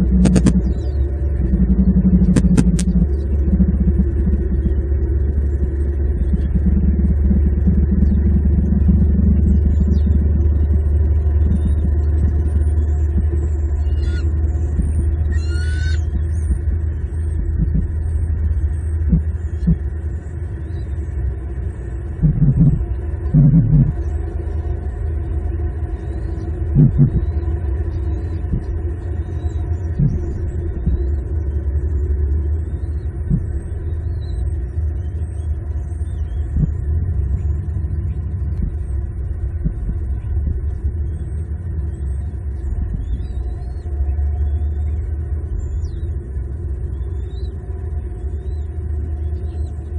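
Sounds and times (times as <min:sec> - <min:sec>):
low bumps: 0:00.0 - 0:15.3, 0:16.1 - 0:20.1, 0:22.0 - 0:24.1, 0:26.5 - 0:27.7, 0:28.3 - 0:44.4
low outdoor rumble: 0:00.0 - 0:49.9
faint high bird chirps: 0:13.3 - 0:19.8.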